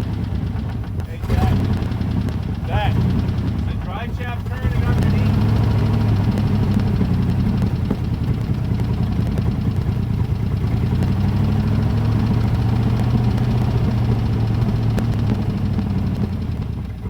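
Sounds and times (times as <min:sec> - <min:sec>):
truck engine idling with knock: 0:00.0 - 0:17.0.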